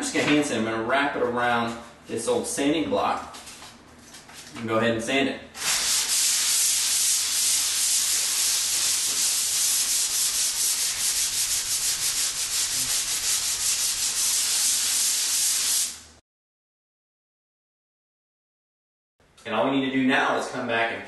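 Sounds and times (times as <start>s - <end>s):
sandpaper sanding drywall: 5.6s - 16.1s.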